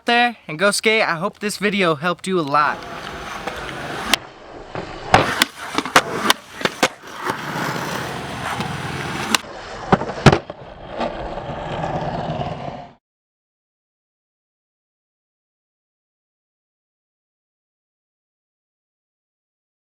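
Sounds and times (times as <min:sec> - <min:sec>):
skateboard wheels rolling on pavement: 0:00.5 - 0:13.0
skateboard tail clacks and landings: 0:02.7 - 0:13.0.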